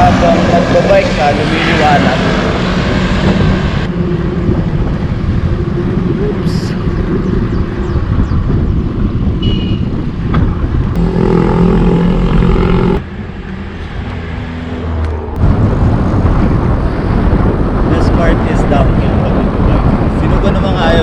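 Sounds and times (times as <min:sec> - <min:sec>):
wind rumbling on microphone: 0:00.0 - 0:21.0
vehicle engine running: 0:11.0 - 0:13.1.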